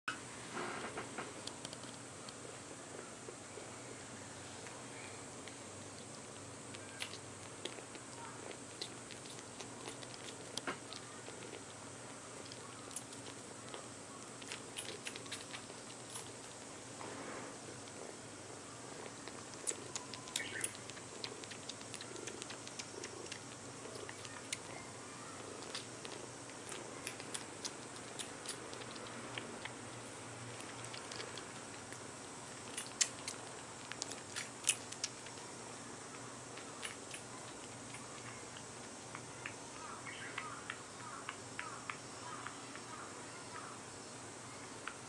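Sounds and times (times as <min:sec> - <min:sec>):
kitten purring: 0:00.5 - 0:38.9
kitten wet sucking clicks: 0:01.2 - 0:02.5, 0:05.4 - 0:16.8, 0:18.9 - 0:24.8, 0:25.4 - 0:35.4, 0:36.5 - 0:39.6.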